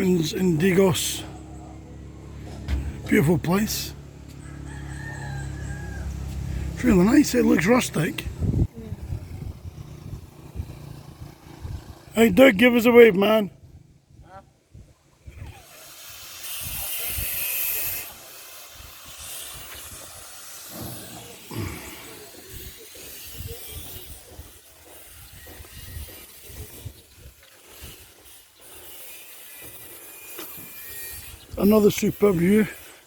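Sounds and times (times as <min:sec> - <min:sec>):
wind rushing on microphone: 0:08.2 - 0:12.1.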